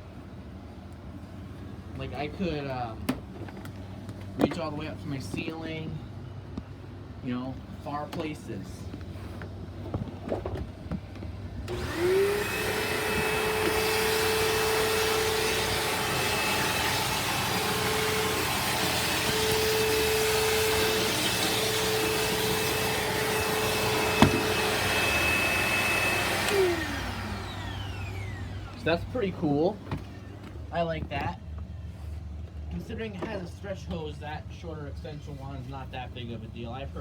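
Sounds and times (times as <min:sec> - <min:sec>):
vacuum cleaner motor: 0:11.6 - 0:29.2.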